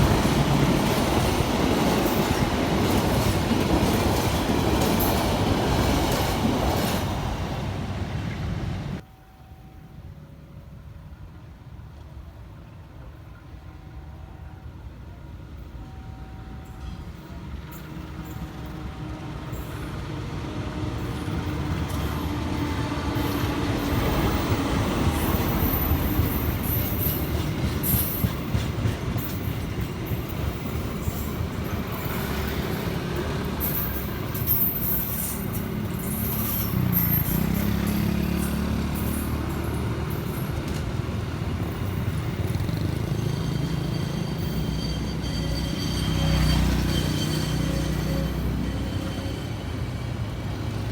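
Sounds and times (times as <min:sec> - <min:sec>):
train wheels rumbling on rails: 0:00.0 - 0:09.0, 0:15.5 - 0:50.9
high-pitched wheel squeal: 0:30.6 - 0:40.6, 0:41.9 - 0:50.2.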